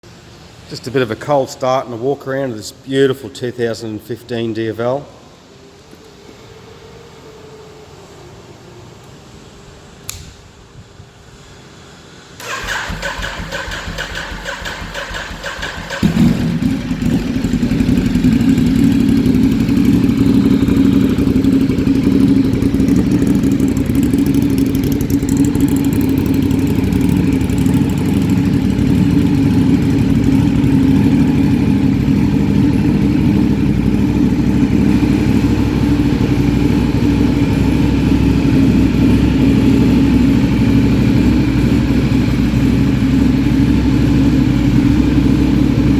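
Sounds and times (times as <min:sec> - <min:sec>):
starter motor cranking: 0:12.4 - 0:16.8
motorcycle engine idling: 0:12.4 - 0:45.9.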